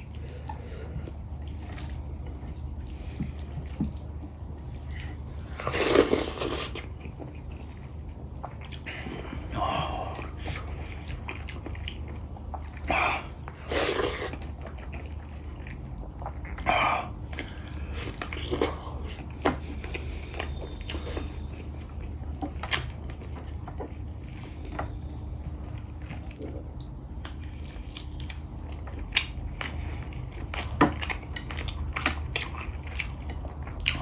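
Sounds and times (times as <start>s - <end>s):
wet smacks and slurps: 0.0s - 7.5s
chewing and mouth noises: 0.0s - 34.0s
steady low hum: 0.0s - 34.0s.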